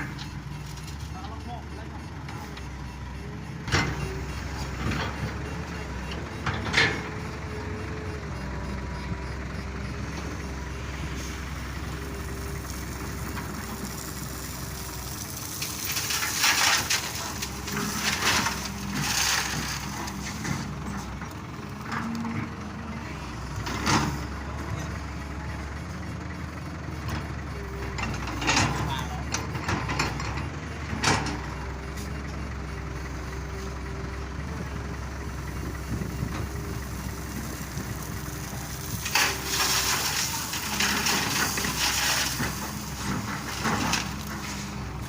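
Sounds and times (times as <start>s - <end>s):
excavator diesel engine running: 0.0s - 45.0s
rocks clattering into truck bed: 15.4s - 20.7s, 38.6s - 44.7s.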